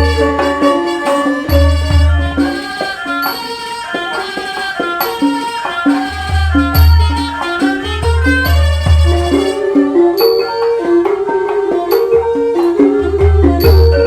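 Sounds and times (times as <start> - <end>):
classical ensemble melodic instruments: 0.0 - 14.0.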